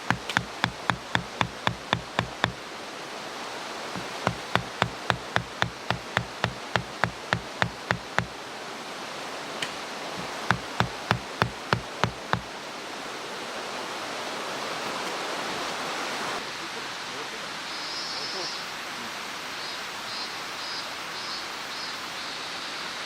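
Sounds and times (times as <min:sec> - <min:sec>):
sharp evenly spaced knocks: 0:00.0 - 0:02.6, 0:04.0 - 0:08.4, 0:10.2 - 0:12.5.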